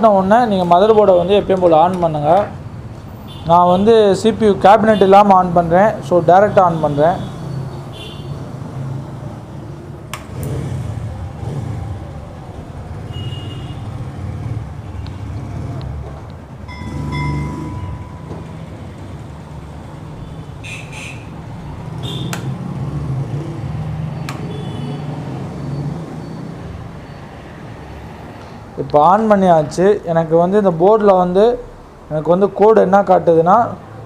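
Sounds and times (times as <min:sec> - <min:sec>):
road traffic rumble: 0:00.0 - 0:34.0
sharp clicks: 0:10.1 - 0:10.6, 0:22.2 - 0:22.6, 0:24.2 - 0:24.5
brief high tones: 0:16.7 - 0:18.6.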